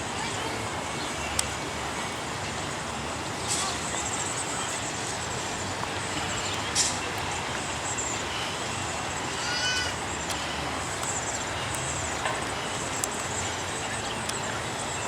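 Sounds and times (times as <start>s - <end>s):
city traffic hum: 0.0s - 15.0s
gull call: 9.3s - 10.0s.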